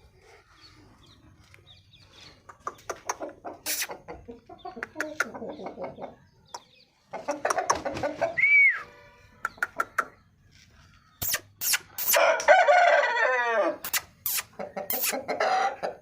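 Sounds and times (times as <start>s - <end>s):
chicken clucking: 0.1s - 12.4s, 13.7s - 16.0s
rooster crowing: 12.1s - 13.8s.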